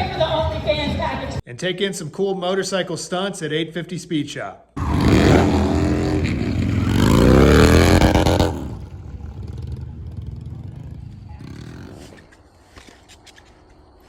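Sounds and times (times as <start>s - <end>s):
motorcycle engine revving hard: 4.8s - 12.2s.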